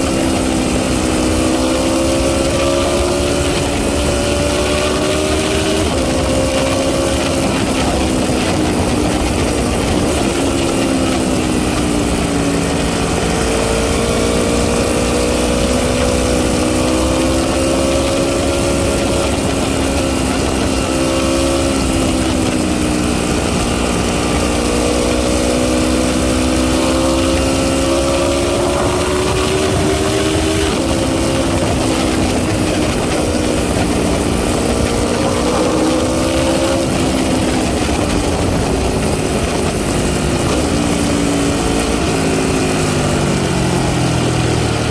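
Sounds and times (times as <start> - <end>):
motorcycle engine idling: 7.3 - 17.5, 26.5 - 44.9.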